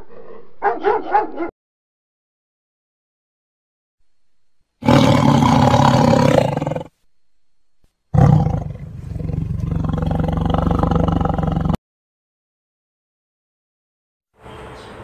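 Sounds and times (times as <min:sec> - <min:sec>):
tiger roaring: 0:04.8 - 0:07.0, 0:08.1 - 0:11.8.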